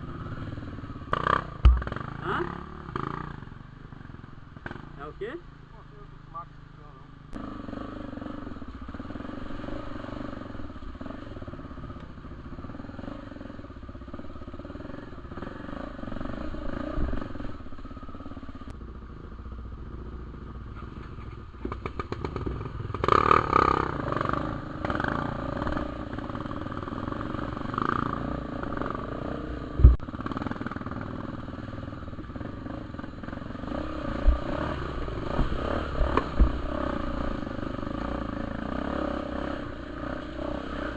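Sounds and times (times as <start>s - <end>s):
motorcycle engine revving: 0.0s - 40.9s
sharp thumps: 1.2s - 2.2s, 29.7s - 30.0s.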